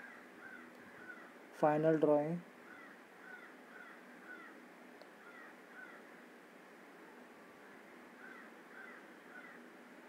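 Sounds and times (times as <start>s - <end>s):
faint bird chirps: 2.6s - 4.6s, 5.2s - 6.1s, 7.6s - 9.7s.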